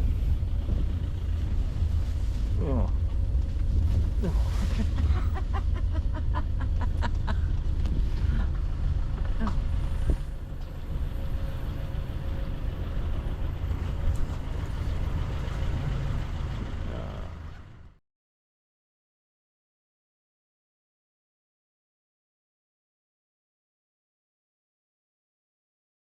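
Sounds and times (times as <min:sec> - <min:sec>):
wind noise: 0:00.0 - 0:14.4
road vehicle rumble: 0:00.0 - 0:18.0.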